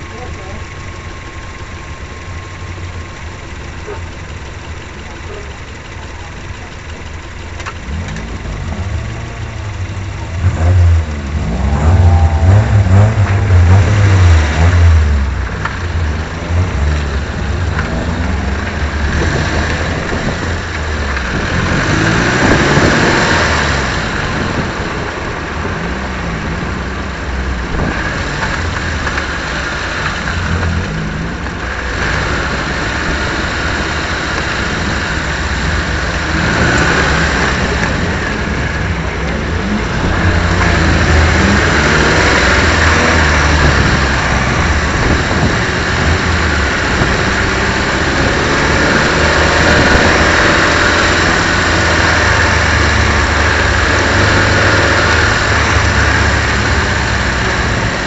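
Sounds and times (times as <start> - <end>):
race car engine revving: 3.6 - 58.0
wind noise: 19.1 - 26.7, 39.8 - 58.0.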